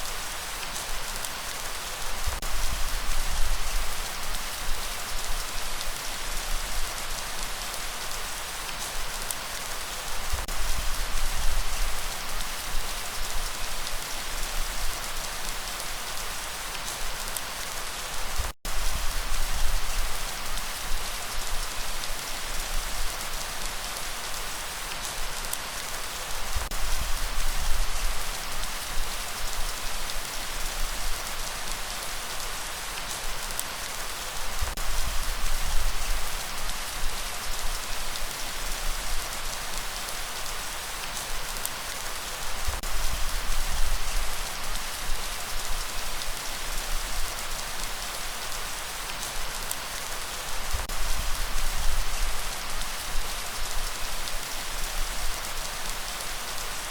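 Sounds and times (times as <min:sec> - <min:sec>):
steady rain hiss: 0:00.0 - 0:56.9.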